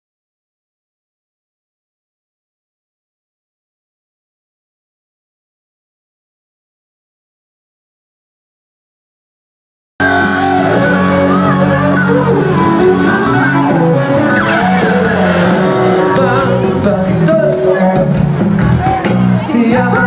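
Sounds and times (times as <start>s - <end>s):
electric guitar: 10.0s - 20.0s
live rock band: 10.0s - 20.0s
person singing: 10.0s - 20.0s.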